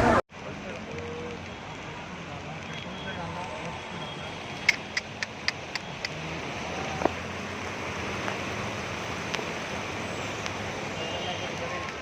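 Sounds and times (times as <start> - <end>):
floodwater rushing: 0.0 - 12.0
rain: 0.0 - 12.0
sharp clicks: 4.6 - 6.2.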